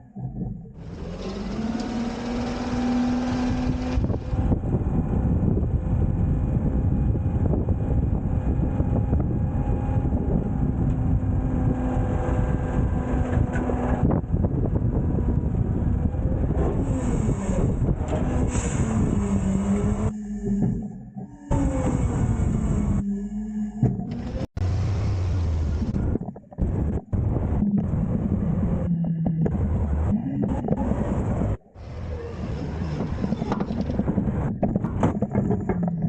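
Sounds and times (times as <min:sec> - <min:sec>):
garbage truck engine rumble: 0:00.0 - 0:36.0
hydraulics whine: 0:00.0 - 0:36.0.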